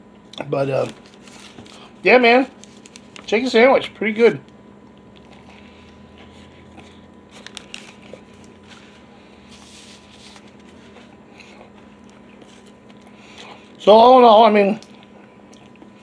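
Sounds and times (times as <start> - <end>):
faint steady hum: 0.0 - 16.0
chewing crunches: 4.8 - 8.9, 10.5 - 13.8, 14.8 - 16.0.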